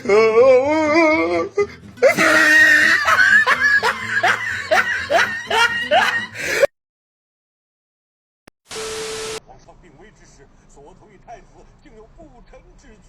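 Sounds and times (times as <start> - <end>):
person laughing loudly: 2.0 - 6.7.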